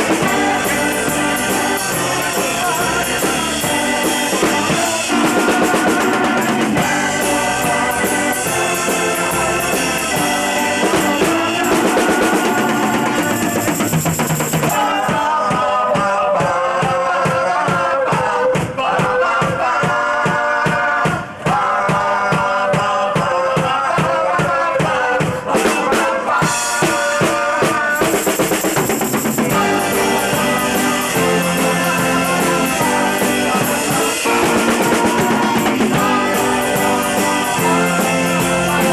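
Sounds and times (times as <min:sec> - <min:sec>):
live rock band playing: 0:00.0 - 0:15.0, 0:27.8 - 0:38.9
drum kit beat: 0:00.0 - 0:38.9.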